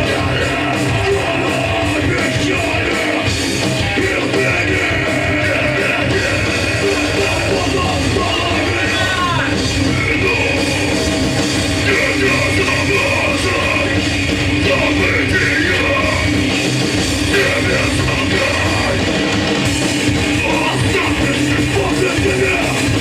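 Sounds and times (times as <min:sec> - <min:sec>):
punk band playing live: 0:00.0 - 0:23.0
shouted vocals: 0:03.9 - 0:11.0.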